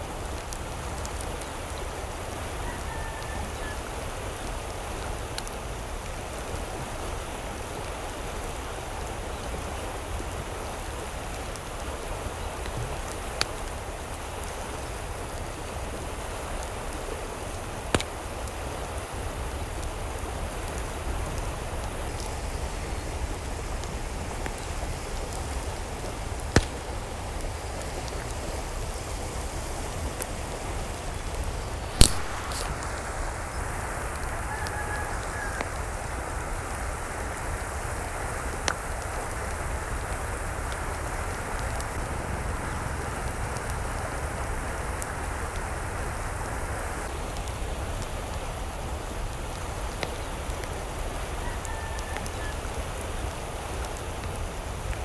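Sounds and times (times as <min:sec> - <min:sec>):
steady rain falling: 0:00.0 - 0:55.0
raindrops tapping on a surface: 0:23.7 - 0:28.3.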